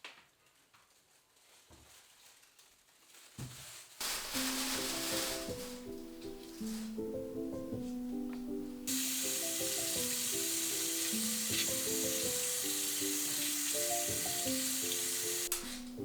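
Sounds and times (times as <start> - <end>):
food frying in oil: 8.9 - 15.5.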